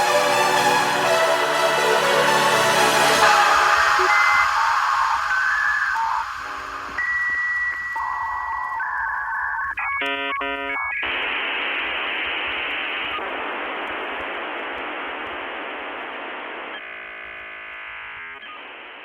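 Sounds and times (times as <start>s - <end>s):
warbling electronic tones: 3.2s - 12.1s
radio static hiss: 3.2s - 19.0s
buzzing tone: 3.4s - 19.0s.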